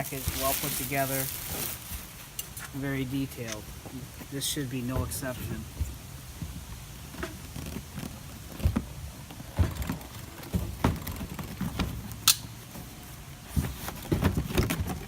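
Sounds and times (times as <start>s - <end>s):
cardboard box knocks and scrapes: 7.2s - 12.0s, 13.5s - 15.0s.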